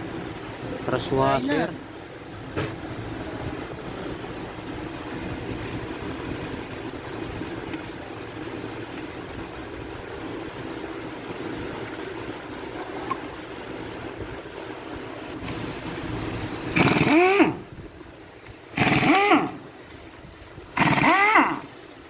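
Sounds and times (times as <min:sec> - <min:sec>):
impact wrench bursts: 0:16.7 - 0:17.6, 0:18.8 - 0:19.6, 0:20.8 - 0:21.7.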